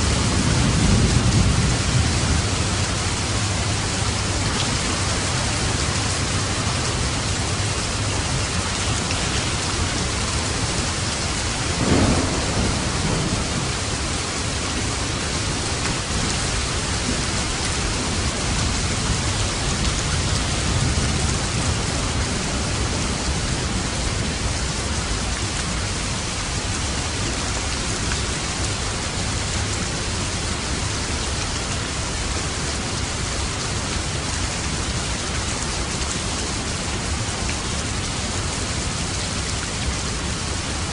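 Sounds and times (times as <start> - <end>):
thunder rumbling: 0.0 - 7.5, 8.2 - 24.9
rain falling on a roof: 0.0 - 40.9.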